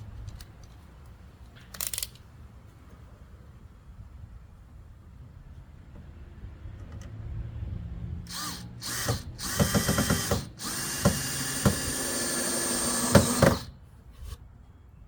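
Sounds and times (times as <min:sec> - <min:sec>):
power drill running on wood: 0:08.3 - 0:13.7.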